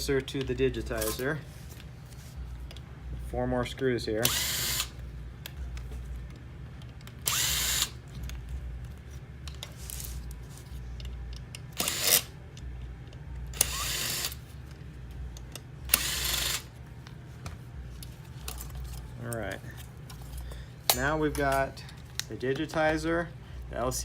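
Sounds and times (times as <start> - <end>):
power screwdriver motor bursts: 4.2 - 5.0, 7.2 - 8.0, 11.8 - 12.3, 13.6 - 14.4, 15.9 - 16.7.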